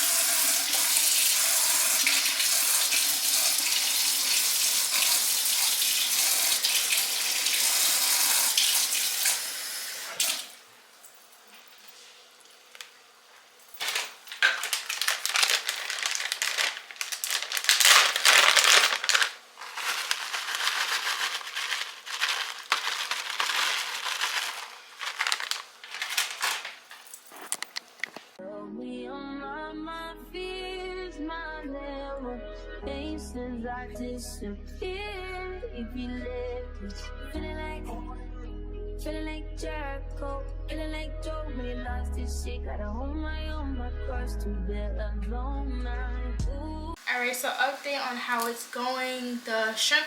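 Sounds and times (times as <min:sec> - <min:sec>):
scraping and clatter in a bowl: 0:18.3 - 0:27.6.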